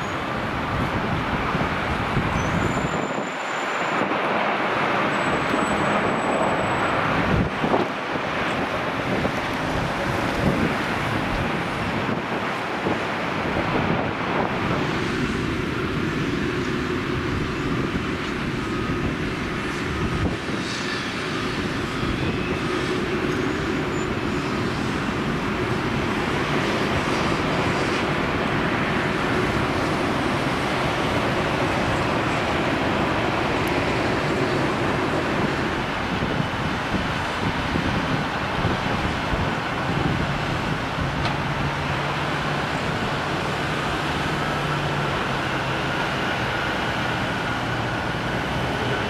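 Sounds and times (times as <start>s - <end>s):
wind buffeting microphone: 0.0s - 3.3s, 3.9s - 49.0s
aircraft and vehicle engine rush: 0.0s - 49.0s.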